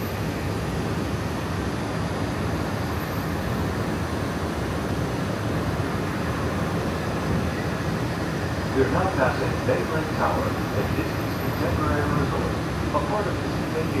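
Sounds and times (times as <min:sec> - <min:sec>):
train running rumble and hiss: 0:00.0 - 0:14.0.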